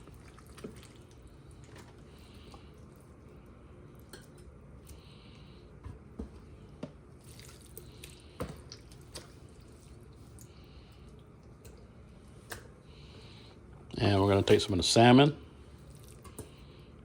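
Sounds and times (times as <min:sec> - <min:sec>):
wet squishing of raw meat: 0:00.0 - 0:05.0, 0:07.0 - 0:12.1, 0:15.7 - 0:16.4.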